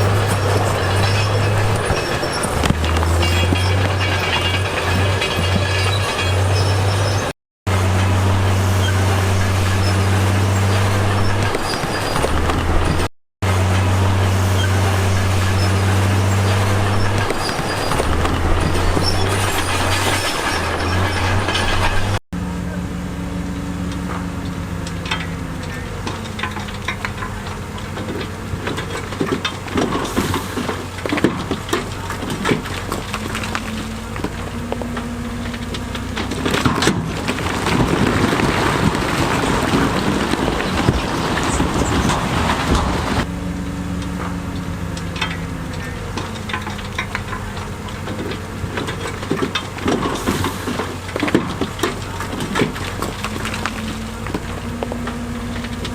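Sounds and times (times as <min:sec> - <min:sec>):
diesel engine running: 0:00.0 - 0:55.9
stones knocking and rattling: 0:26.1 - 0:43.1, 0:45.0 - 0:55.9.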